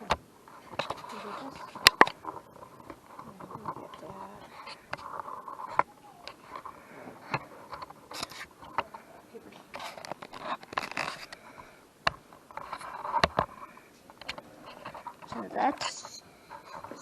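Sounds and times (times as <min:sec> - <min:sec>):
faint room noise: 0:00.0 - 0:17.0.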